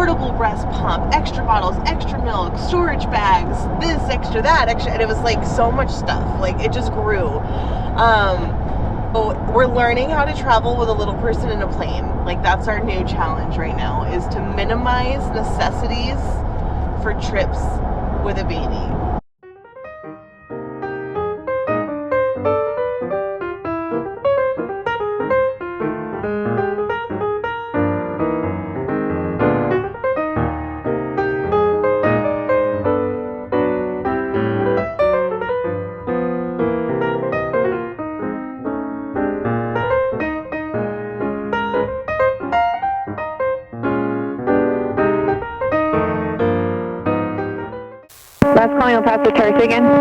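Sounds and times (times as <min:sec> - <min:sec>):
piano music: 0:19.4 - 0:50.0.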